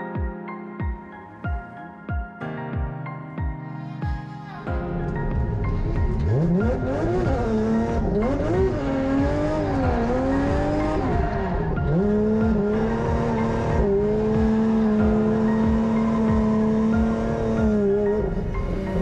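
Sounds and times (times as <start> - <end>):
car engine revving: 5.0 - 19.0.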